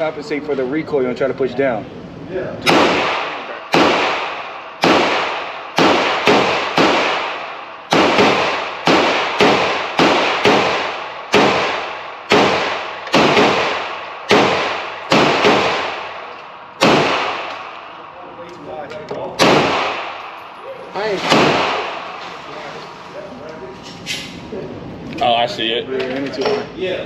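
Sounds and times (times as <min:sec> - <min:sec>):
echoing handgun shots: 0:02.6 - 0:18.2, 0:19.4 - 0:20.6, 0:21.2 - 0:22.2.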